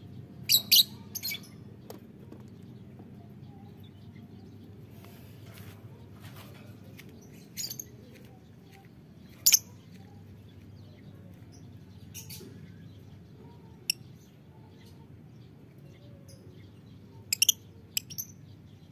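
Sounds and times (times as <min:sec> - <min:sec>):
low background noise: 0:00.0 - 0:18.9
lovebirds shrill calls: 0:00.5 - 0:01.6, 0:17.3 - 0:18.3.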